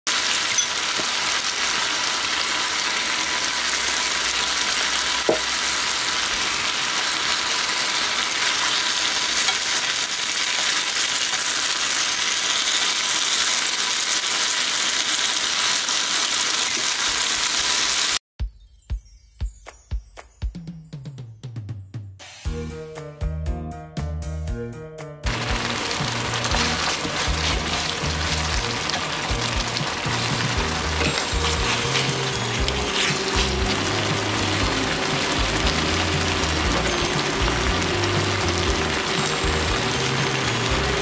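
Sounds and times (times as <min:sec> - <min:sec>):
chicken sizzling in sauce: 0:00.1 - 0:18.2, 0:25.3 - 0:41.0.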